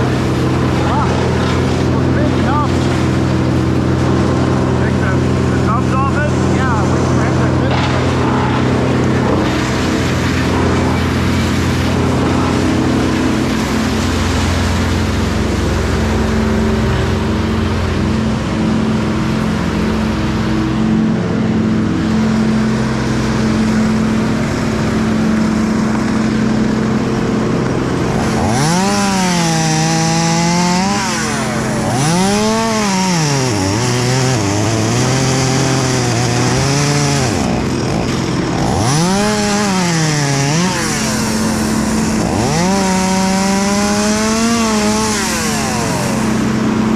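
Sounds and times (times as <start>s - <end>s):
chainsaw revving: 0.0s - 46.9s
engine running steadily: 0.0s - 46.9s.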